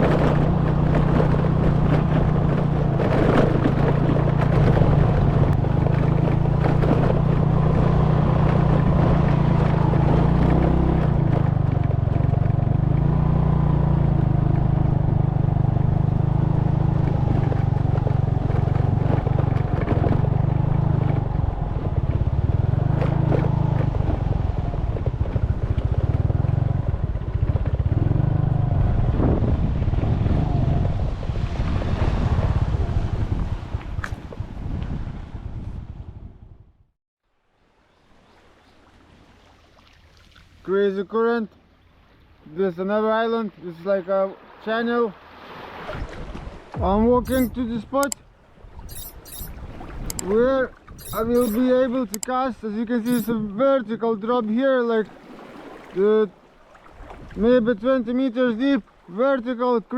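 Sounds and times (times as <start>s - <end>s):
small boat engine running: 0.0s - 36.3s, 46.8s - 53.6s, 54.9s - 57.7s.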